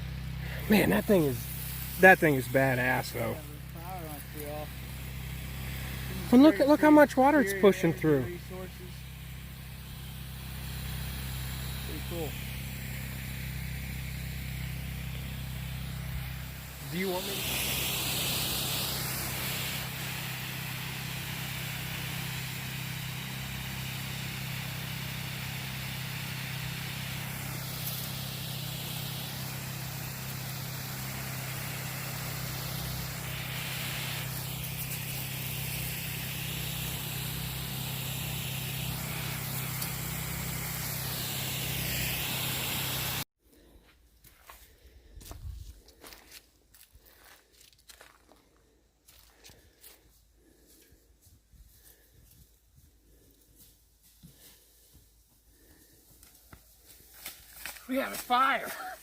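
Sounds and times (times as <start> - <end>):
water pump humming: 0.0 - 43.3, 57.1 - 59.0
water spraying from hose: 0.0 - 43.3, 51.9 - 52.1, 54.3 - 54.6, 55.5 - 59.0.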